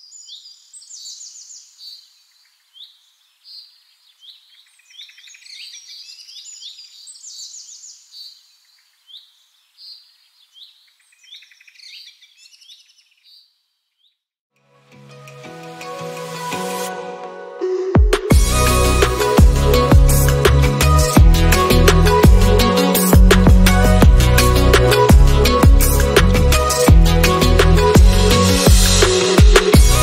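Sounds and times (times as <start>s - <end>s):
birds chirping and trilling: 0.0s - 14.2s.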